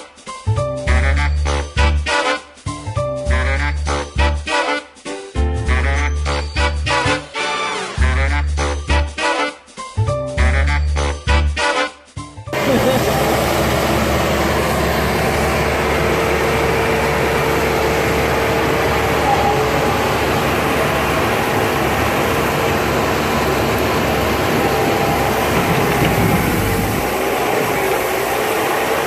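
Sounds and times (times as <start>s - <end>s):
stump grinder running: 12.6s - 29.0s.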